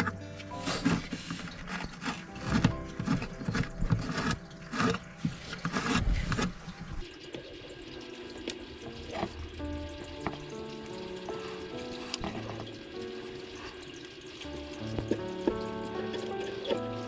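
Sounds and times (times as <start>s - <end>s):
water pouring and splashing: 0.0s - 17.0s.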